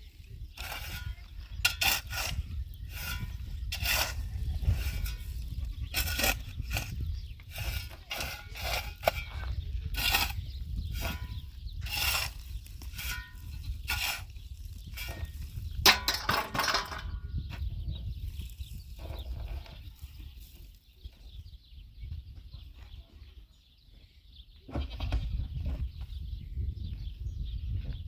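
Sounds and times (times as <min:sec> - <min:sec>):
hand tool rasping: 0:00.6 - 0:15.5.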